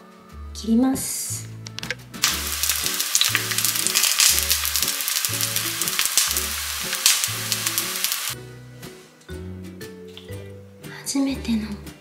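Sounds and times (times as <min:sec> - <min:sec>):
frying sizzle with crackles: 0:02.2 - 0:08.4
soft music with bass beat: 0:04.4 - 0:12.0.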